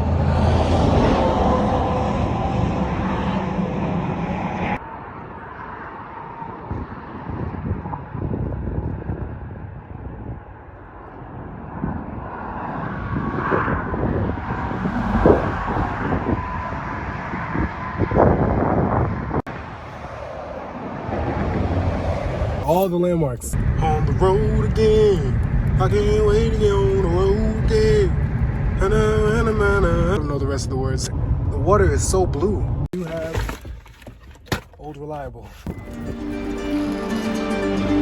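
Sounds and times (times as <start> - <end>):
low rumble: 0.0 - 5.6, 23.5 - 32.9
wind noise: 0.0 - 22.7, 23.5 - 34.1
road traffic: 0.0 - 38.0.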